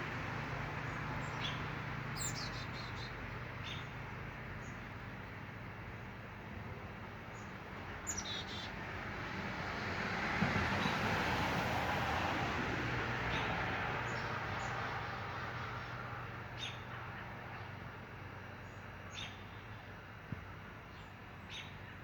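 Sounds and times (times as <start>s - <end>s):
small birds chirping: 0.8s - 4.0s, 7.3s - 8.8s, 18.6s - 19.8s, 20.8s - 22.0s.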